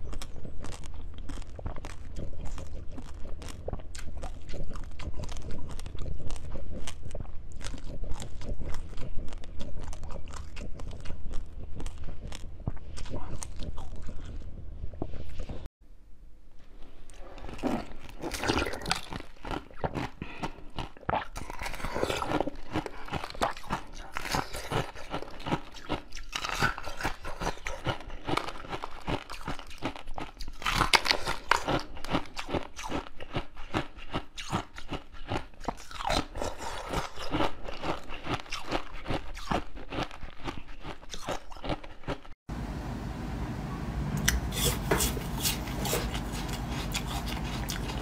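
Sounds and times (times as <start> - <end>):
close biting and chewing: 0.0 - 15.7, 17.0 - 42.4, 44.2 - 48.0.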